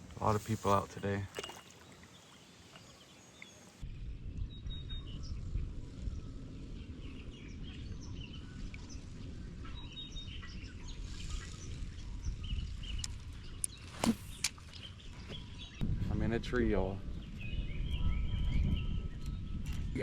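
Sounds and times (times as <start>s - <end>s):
birds chirping: 0.0s - 3.9s, 17.1s - 20.0s
wind buffeting microphone: 3.8s - 20.0s.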